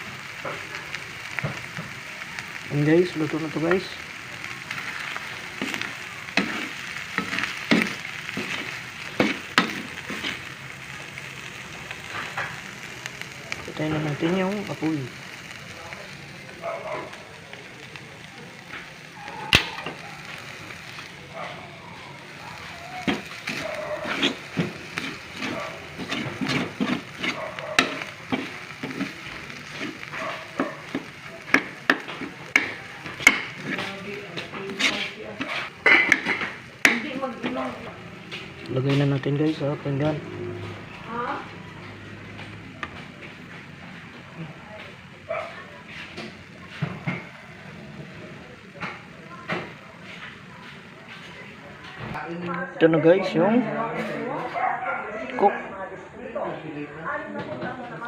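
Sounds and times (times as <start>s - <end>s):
meat sizzling in a pan: 0.0s - 52.2s
spatula scraping a frying pan: 5.1s - 10.6s, 22.6s - 37.7s
spatula tapping a pan: 30.6s - 33.8s.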